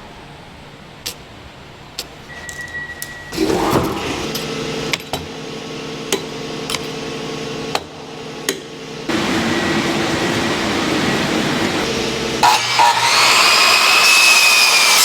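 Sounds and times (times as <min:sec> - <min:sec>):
production machinery humming: 0:00.2 - 0:15.0
machinery hissing: 0:09.1 - 0:13.9.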